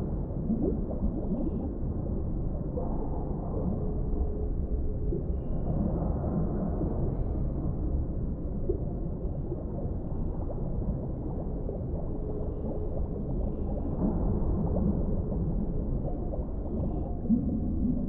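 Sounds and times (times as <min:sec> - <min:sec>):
bubbling gurgles: 0:00.0 - 0:18.0
low underwater rumble: 0:00.0 - 0:18.0.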